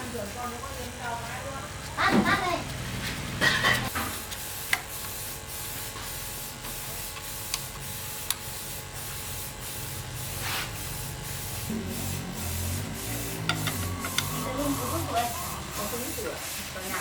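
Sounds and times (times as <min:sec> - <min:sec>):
steady hissing: 0:10.2 - 0:17.0.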